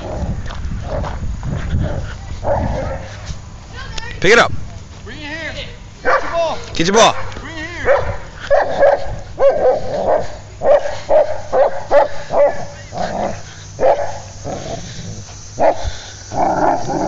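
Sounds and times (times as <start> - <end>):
dog barking: 1.9 - 3.2, 6.0 - 6.5, 7.1 - 13.1, 13.8 - 14.3, 15.6 - 15.9.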